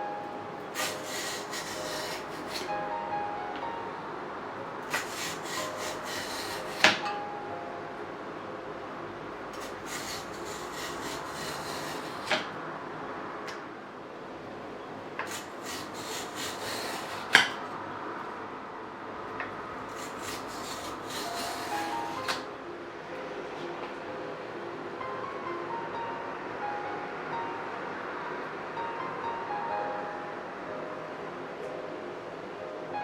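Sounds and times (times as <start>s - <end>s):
shells scraping and rubbing: 0.6s - 2.7s, 4.8s - 7.0s, 9.6s - 12.5s, 15.2s - 17.6s, 19.9s - 22.4s.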